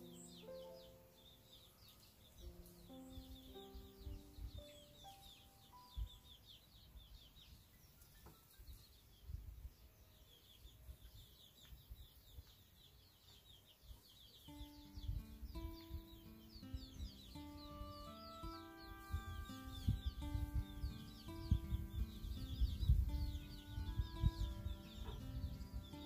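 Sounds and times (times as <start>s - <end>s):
soft background music: 0.0s - 6.5s, 14.5s - 26.0s
small birds chirping rapidly: 0.0s - 26.0s.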